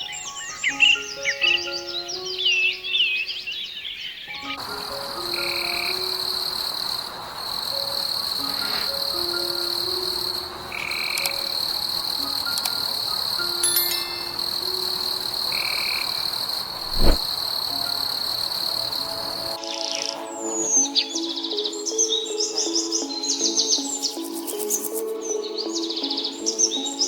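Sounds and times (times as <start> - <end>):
night chorus of calling animals: 2.4 - 13.7, 14.3 - 21.8
soft chime-like notes: 11.0 - 15.6.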